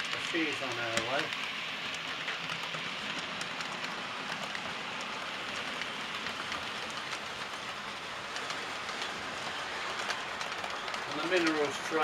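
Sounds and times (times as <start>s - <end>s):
model train wheels rushing on rails: 0.0s - 12.0s
faint clicks: 8.3s - 11.6s.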